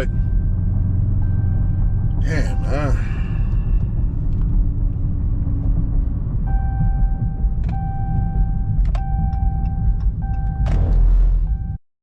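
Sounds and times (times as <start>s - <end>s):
car cabin rumble: 0.0s - 11.8s.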